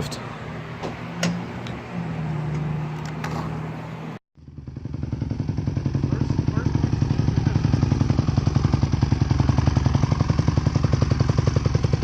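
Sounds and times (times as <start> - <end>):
road noise: 0.0 - 12.0
vehicle engine droning: 0.0 - 12.0
engine running with fast putter: 4.4 - 12.0.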